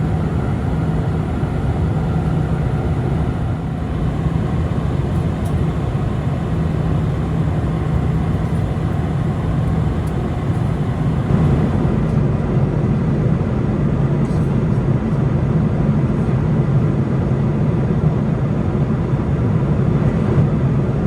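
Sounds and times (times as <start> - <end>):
low hum: 0.0 - 12.9
airplane cabin engine rush: 0.0 - 21.0.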